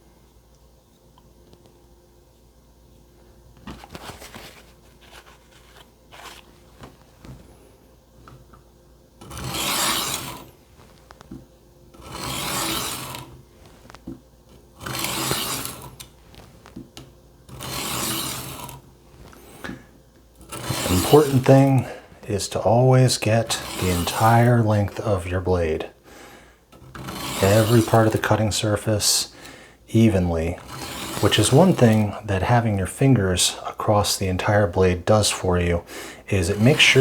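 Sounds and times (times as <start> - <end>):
knife scraping on sharpening stone: 9.3 - 10.4, 12.0 - 13.2, 14.9 - 15.9, 17.5 - 18.8, 20.5 - 21.9, 23.5 - 24.5, 26.8 - 28.3, 30.6 - 32.1.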